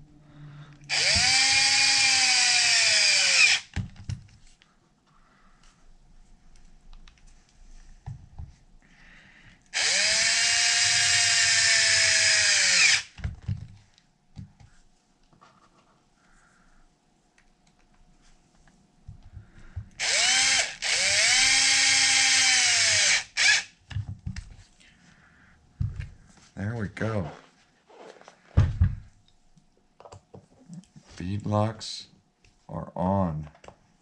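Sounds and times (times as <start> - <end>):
power drill driving screws: 0.8 - 3.8, 9.8 - 13.2, 20.0 - 23.7.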